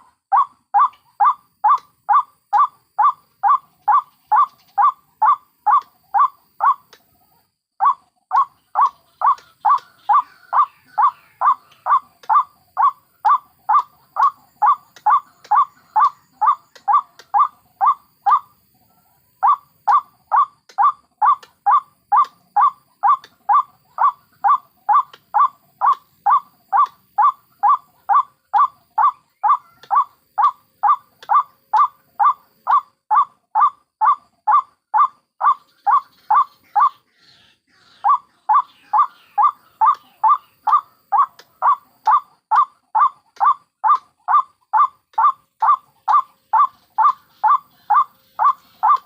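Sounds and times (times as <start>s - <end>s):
waterhen calling harsh notes: 37.7s - 49.0s.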